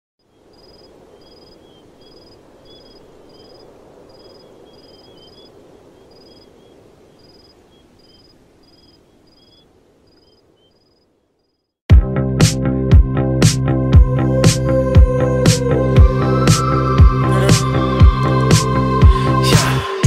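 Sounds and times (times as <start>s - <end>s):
soft bird warbling: 0.3s - 11.6s.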